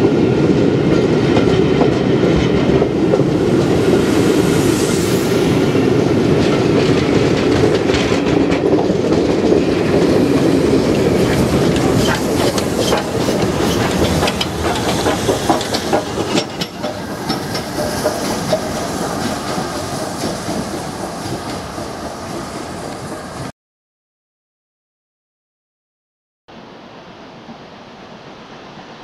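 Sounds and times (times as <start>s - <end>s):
train wheels clattering past: 0.8s - 23.5s.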